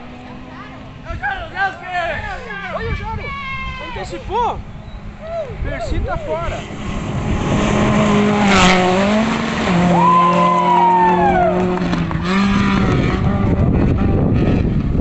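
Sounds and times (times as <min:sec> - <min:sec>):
rally car engine running hard: 0:06.5 - 0:15.0.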